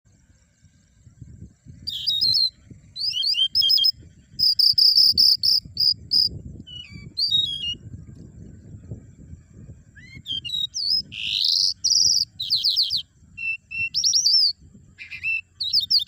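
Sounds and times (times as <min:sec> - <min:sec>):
songbird singing: 0:00.1 - 0:16.0.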